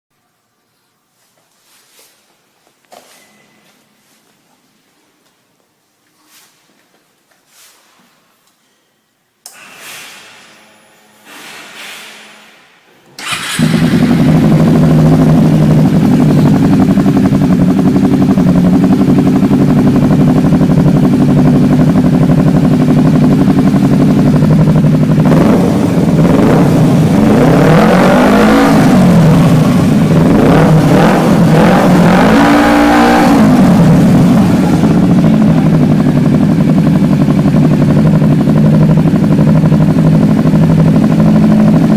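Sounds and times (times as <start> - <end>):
motorcycle engine idling loudly: 13.2 - 41.9
motorcycle engine revving: 13.2 - 41.9
motorcycle engine starting up: 13.2 - 41.9.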